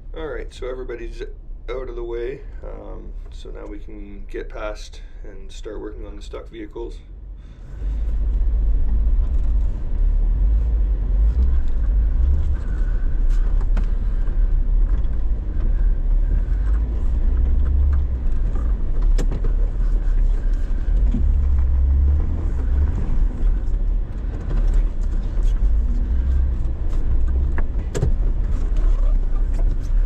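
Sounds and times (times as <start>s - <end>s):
vehicle engine rumble: 0.0s - 30.0s
sharp knocks and clicks: 16.7s - 19.6s, 26.6s - 28.9s.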